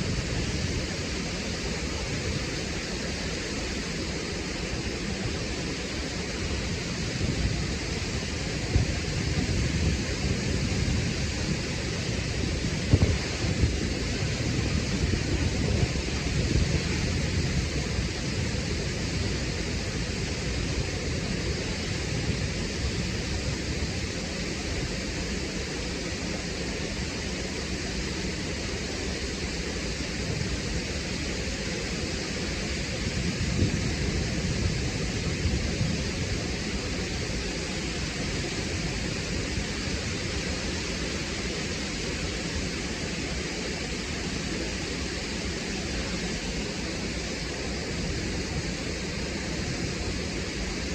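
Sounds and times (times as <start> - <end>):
waterfall crashing onto rocks: 0.0 - 27.3.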